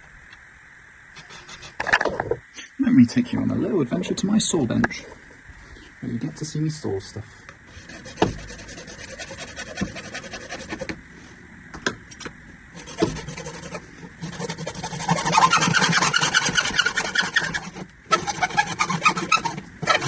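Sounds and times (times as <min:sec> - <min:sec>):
hand saw rasping: 0:07.8 - 0:10.9, 0:12.8 - 0:20.0.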